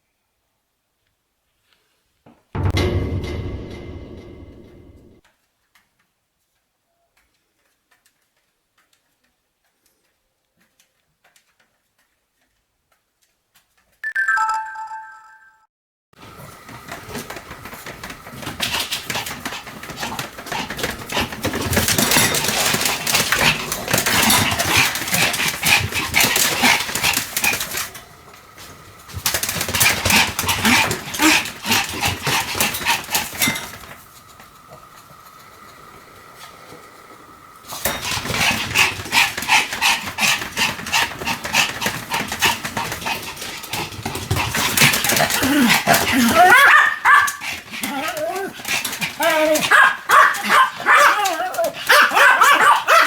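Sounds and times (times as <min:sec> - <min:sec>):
dog barking and yapping: 0:18.4 - 0:33.9, 0:37.8 - 0:53.0.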